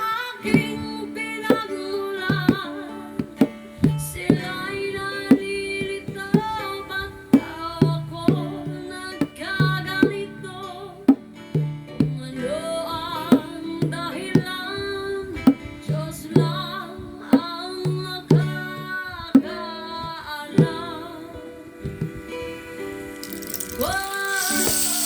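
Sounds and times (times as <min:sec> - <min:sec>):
acoustic guitar: 0:00.0 - 0:25.0
person singing: 0:00.0 - 0:25.0
bongo strikes: 0:00.4 - 0:06.7, 0:07.3 - 0:12.4, 0:17.4 - 0:21.0, 0:21.8 - 0:25.0.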